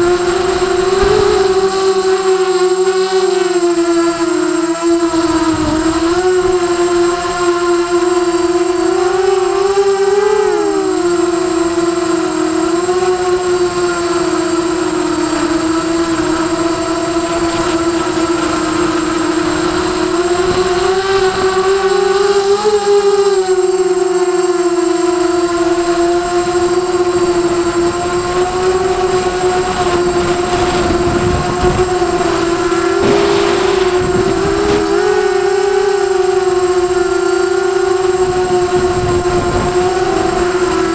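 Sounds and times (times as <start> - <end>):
drone motors whining: 0.0 - 40.9
brief rushes of noise: 32.8 - 35.4.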